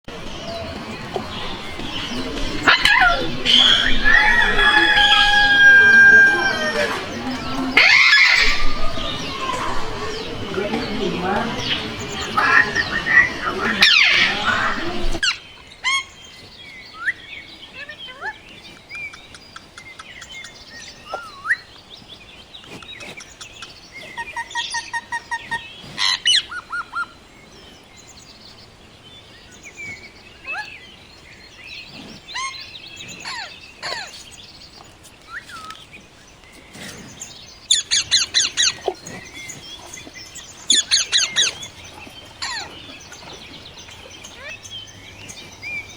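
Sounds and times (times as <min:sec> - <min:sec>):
parrot calling: 0:02.3 - 0:16.1, 0:37.7 - 0:43.2
parrot chattering chirps: 0:37.7 - 0:42.7.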